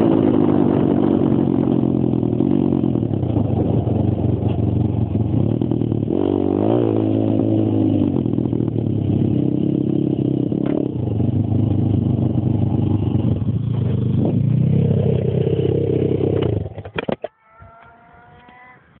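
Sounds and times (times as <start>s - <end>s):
pit bike engine running hard: 0.0s - 16.8s
faint high rising tone: 17.2s - 19.0s.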